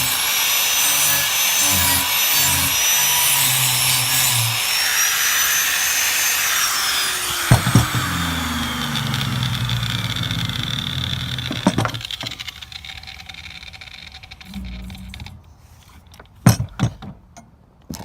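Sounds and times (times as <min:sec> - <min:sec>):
power tool grinding metal: 0:00.0 - 0:13.6
sharp knocks: 0:07.4 - 0:08.3.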